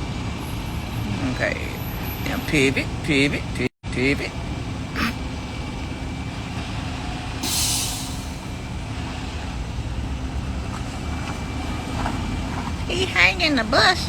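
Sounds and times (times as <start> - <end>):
heavy vehicles idling: 0.0 - 14.0
air brake hiss: 7.4 - 8.5.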